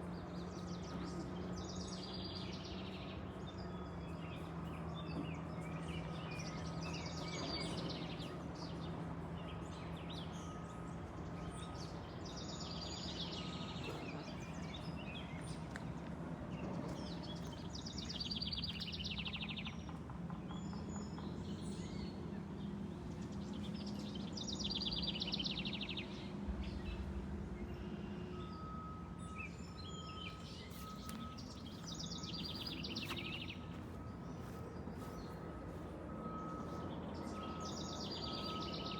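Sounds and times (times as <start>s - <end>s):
songbird trilling: 28.4s - 35.5s.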